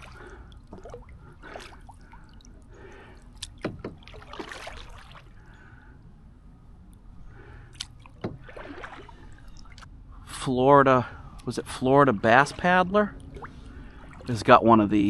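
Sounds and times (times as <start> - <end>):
paddle splashing in water: 0.0 - 5.4, 7.7 - 9.9, 12.3 - 14.4
water trickling drips: 0.0 - 5.8, 7.7 - 9.9
sharp knocks: 3.6 - 4.1.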